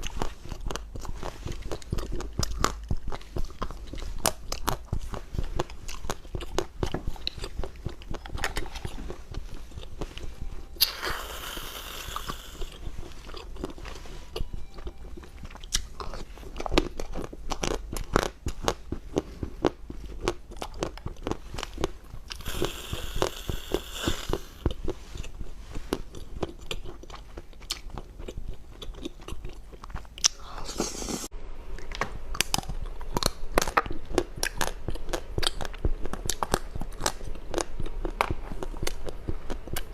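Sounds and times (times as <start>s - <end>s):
crunchy food being chewed: 0.0s - 31.2s, 31.8s - 39.9s
rustling hiss: 22.4s - 24.7s.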